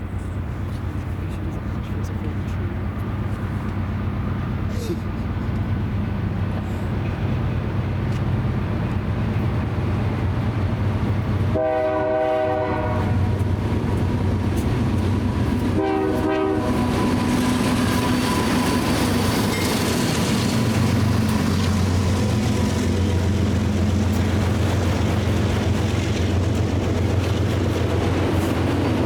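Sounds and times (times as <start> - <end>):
locomotive engine rumble: 0.0 - 29.0
rail and wheel noise: 0.0 - 29.0
locomotive air horn: 11.5 - 13.3, 15.7 - 17.2.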